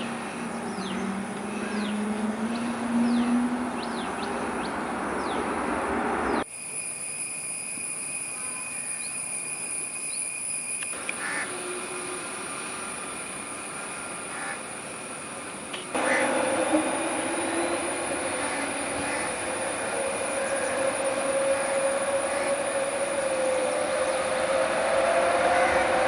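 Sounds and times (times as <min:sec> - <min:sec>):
distant jet engine roar: 0:00.0 - 0:06.5, 0:11.0 - 0:26.0
jet engine high-pitched whine: 0:00.0 - 0:26.0.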